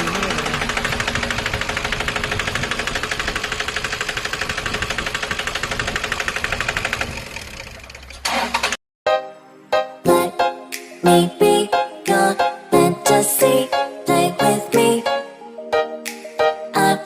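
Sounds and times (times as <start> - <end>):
diesel engine knocking loudly: 0.0 - 8.2.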